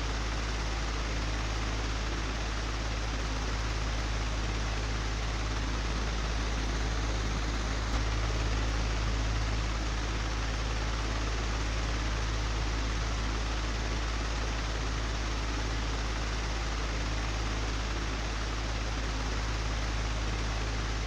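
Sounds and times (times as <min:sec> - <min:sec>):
electric fan whirring: 0:02.9 - 0:13.4.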